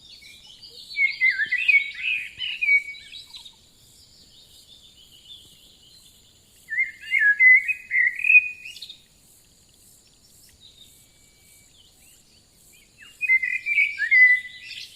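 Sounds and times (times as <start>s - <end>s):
songbird warbling: 0.0s - 3.6s, 6.7s - 9.1s, 12.8s - 14.9s
high-pitched insect trill: 0.1s - 14.9s.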